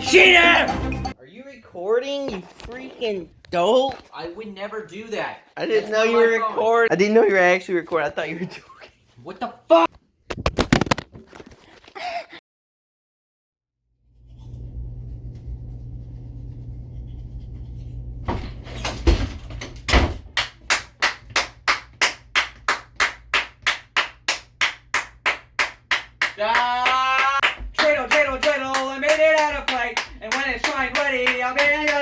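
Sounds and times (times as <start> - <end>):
hand claps: 20.4 - 32.0
person singing: 26.4 - 32.0.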